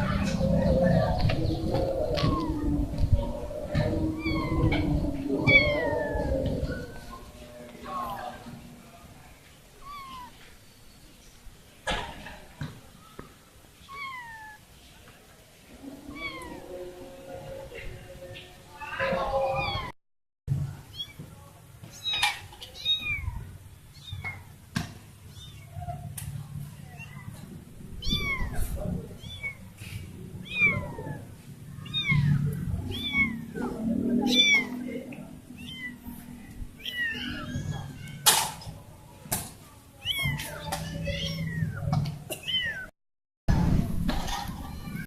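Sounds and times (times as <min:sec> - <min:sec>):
low rumble: 0:00.0 - 0:08.8, 0:43.5 - 0:45.0
kitten meowing: 0:02.1 - 0:02.6, 0:04.2 - 0:04.8, 0:05.4 - 0:06.1, 0:09.8 - 0:10.4, 0:13.9 - 0:14.6, 0:16.1 - 0:16.6, 0:22.0 - 0:24.4, 0:25.3 - 0:25.8, 0:28.0 - 0:29.6, 0:30.4 - 0:31.2, 0:31.8 - 0:33.5, 0:34.3 - 0:34.8, 0:35.6 - 0:36.1, 0:36.8 - 0:38.3, 0:40.0 - 0:42.9.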